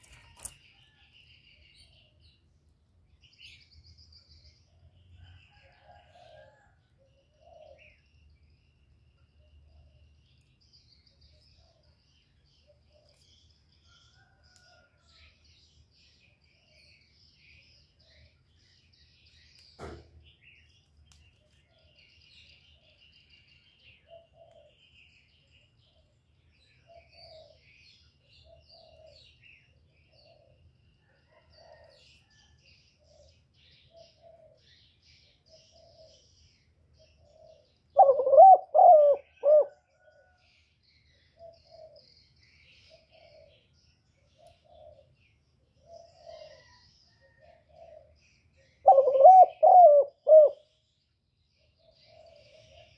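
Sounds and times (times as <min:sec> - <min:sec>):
birds chirping: 0:00.0 - 0:52.9
wavering bird calls: 0:24.0 - 0:25.0, 0:37.1 - 0:40.4, 0:45.8 - 0:50.7.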